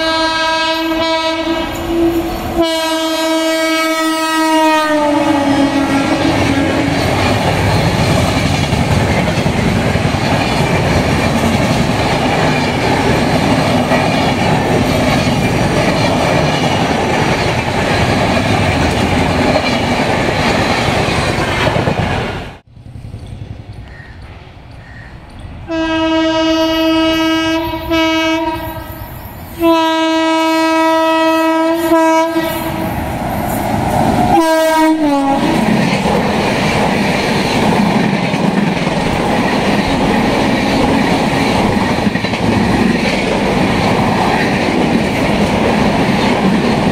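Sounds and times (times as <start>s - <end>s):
locomotive horn blasts: 0.0s - 7.0s, 25.7s - 32.8s, 34.3s - 35.6s
train rushing past: 0.0s - 46.9s.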